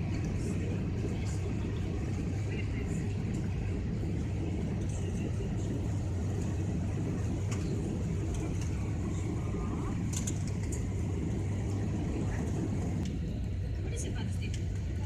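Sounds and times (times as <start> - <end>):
drone of engines and airflow: 0.0 - 15.0.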